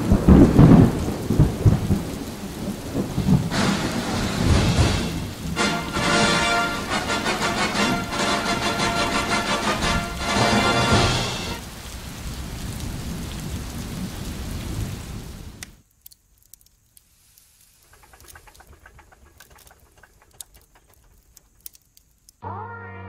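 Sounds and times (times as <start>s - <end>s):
rain-like hiss: 0.0s - 22.4s
music: 3.6s - 11.6s, 22.4s - 23.0s.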